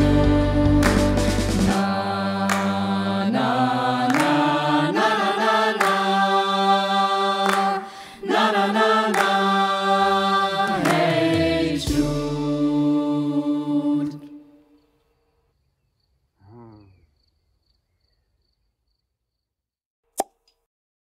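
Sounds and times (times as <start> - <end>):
young voices singing in chorus: 0.0 - 14.6.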